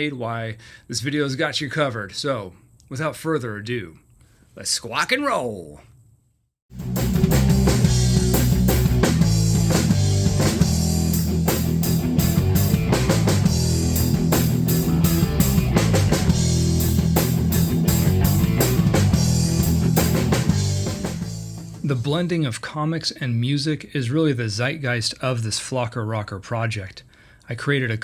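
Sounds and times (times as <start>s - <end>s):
loud rock music: 6.7s - 21.8s.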